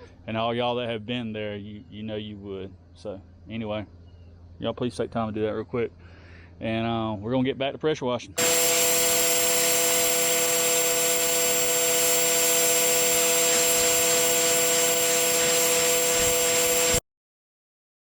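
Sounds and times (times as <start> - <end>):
high-pressure spray hiss: 8.4 - 17.0
pressure washer motor hum: 8.4 - 17.0.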